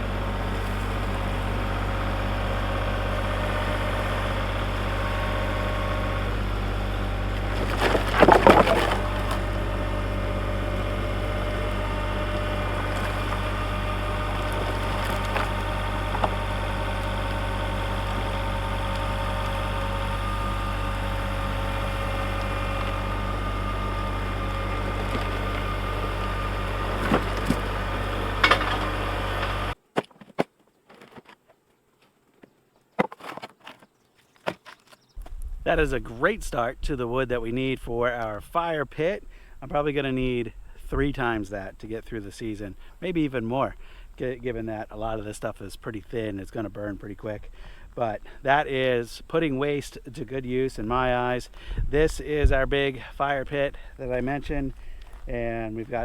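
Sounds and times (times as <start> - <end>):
engine humming: 0.0 - 29.8, 33.5 - 56.0
wood clattering and cracking: 7.4 - 10.0, 12.0 - 19.6, 21.4 - 35.4.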